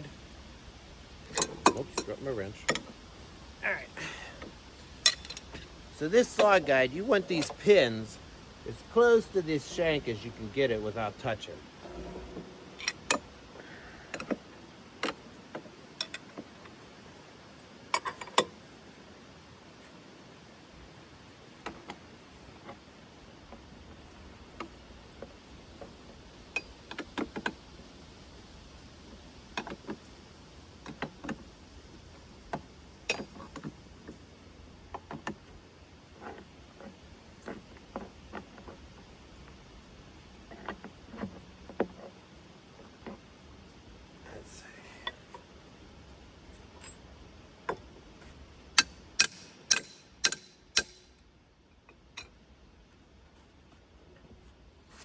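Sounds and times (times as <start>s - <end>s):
metallic clicks of wrench and steel parts: 1.3s - 2.9s, 5.0s - 6.7s, 11.4s - 13.4s, 16.0s - 16.4s, 18.0s - 18.5s, 48.8s - 51.2s
metal strikes ringing: 11.8s - 13.6s.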